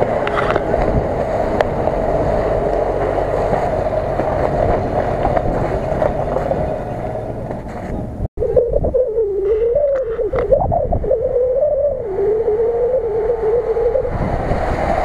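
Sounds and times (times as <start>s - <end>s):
car engine running under load: 0.0s - 8.3s.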